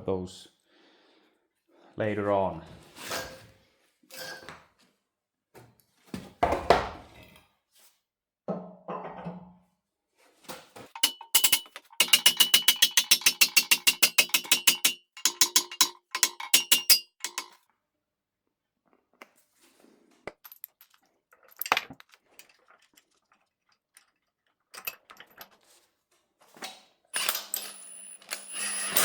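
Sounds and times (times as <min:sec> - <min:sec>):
sharp metallic knocks: 0:11.0 - 0:17.6.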